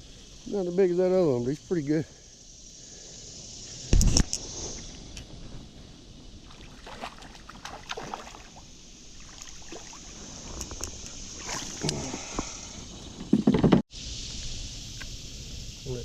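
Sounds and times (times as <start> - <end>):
high insect buzz: 0.0 - 16.0
water splashing against kayak: 6.4 - 12.6.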